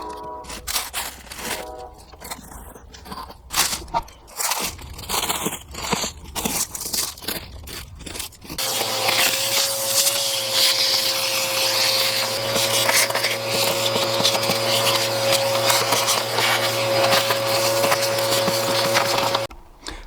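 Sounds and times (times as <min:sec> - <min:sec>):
vacuum cleaner whining: 0:08.6 - 0:19.5.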